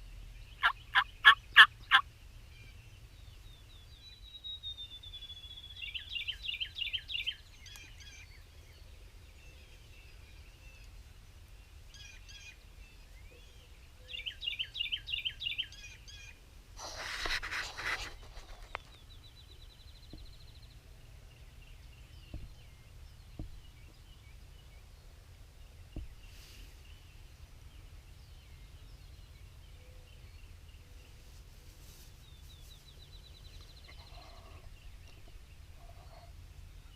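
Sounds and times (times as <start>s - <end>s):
rapid repeated bird notes: 0.0s - 2.1s
faint bird calls: 0.0s - 2.8s, 33.5s - 36.9s.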